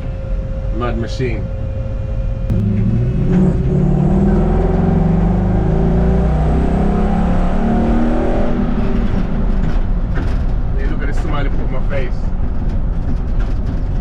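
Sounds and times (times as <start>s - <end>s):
engine accelerating: 1.7s - 14.0s.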